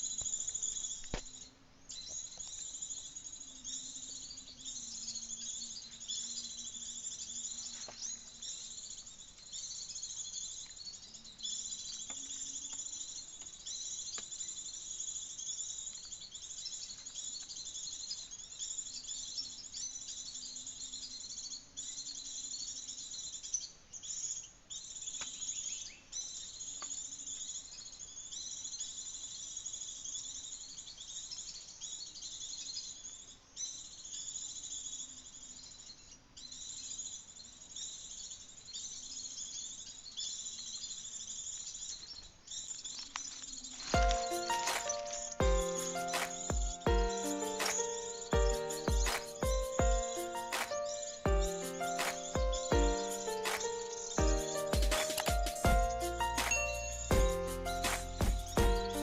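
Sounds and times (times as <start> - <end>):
small birds chirping and trilling: 0.0 - 59.0
insect calls: 42.7 - 59.0.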